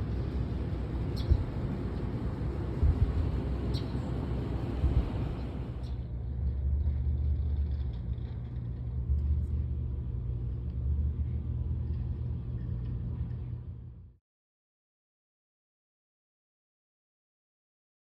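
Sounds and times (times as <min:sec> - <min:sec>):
low steady rumble: 0:00.0 - 0:14.2.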